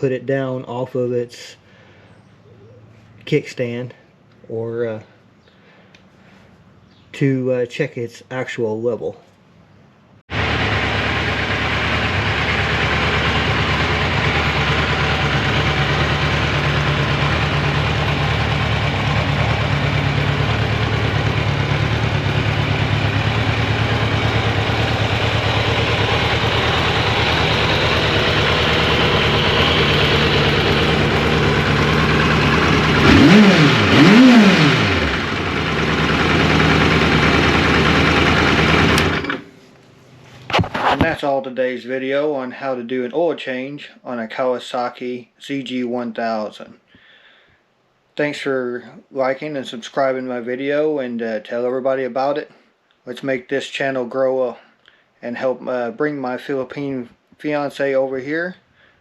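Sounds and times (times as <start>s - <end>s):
motorcycle engine idling and revving: 10.3s - 39.5s.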